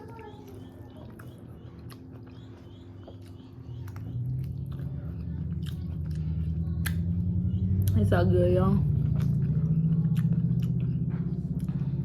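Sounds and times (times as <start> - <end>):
low hummed tone: 0.0 - 12.0
chewing and biting food: 0.1 - 8.1, 8.8 - 12.0.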